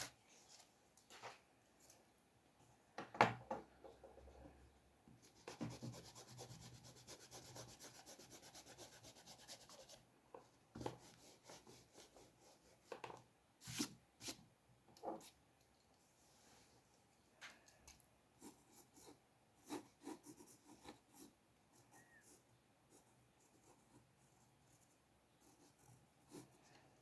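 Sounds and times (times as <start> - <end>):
rubbing on paper: 5.2 - 10.0.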